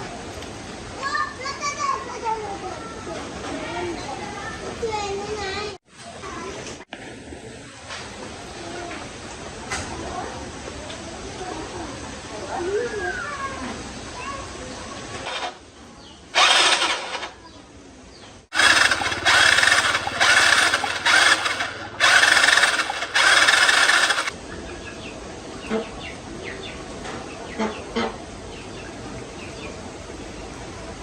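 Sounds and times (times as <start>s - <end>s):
motor bursts: 16.4s - 17.3s, 18.5s - 24.3s.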